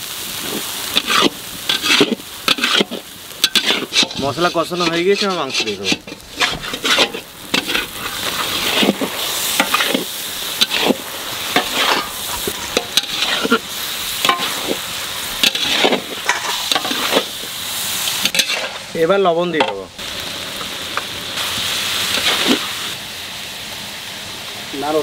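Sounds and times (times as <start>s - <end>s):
chicken sizzling in hot oil: 0.0s - 25.0s
metal spatula scraping a wok: 0.4s - 17.5s, 18.1s - 19.0s, 22.1s - 22.7s.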